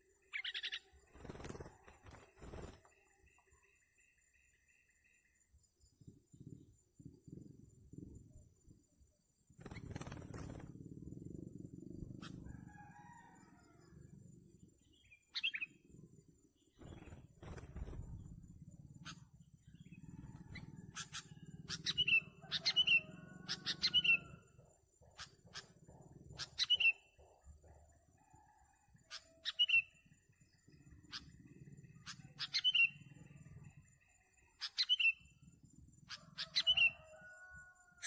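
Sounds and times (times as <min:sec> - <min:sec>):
bulbuls chirping: 0:14.8 - 0:27.2, 0:30.7 - 0:37.3.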